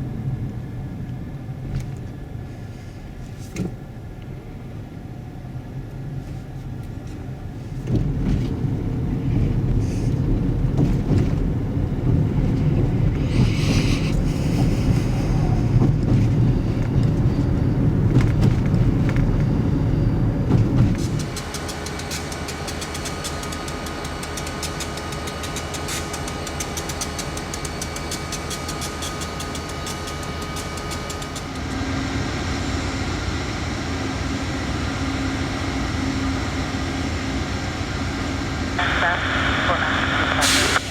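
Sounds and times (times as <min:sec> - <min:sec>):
vehicle rumble: 0:00.0 - 0:40.9
train wheels clicking on rails: 0:07.8 - 0:19.6, 0:20.3 - 0:32.2
faint steady whine: 0:31.6 - 0:40.9.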